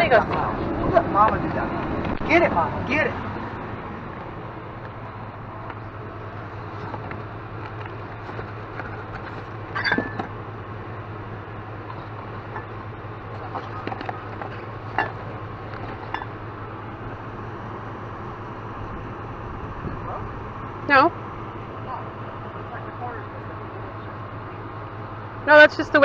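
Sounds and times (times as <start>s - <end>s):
vehicle engine idling: 0.0s - 26.0s
knocks and clinks: 9.7s - 10.3s.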